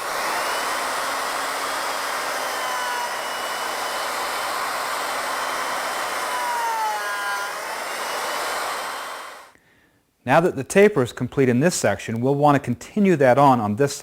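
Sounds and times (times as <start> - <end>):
high whine of spinning bit: 0.0 - 9.5
wood router cutting: 0.0 - 9.5.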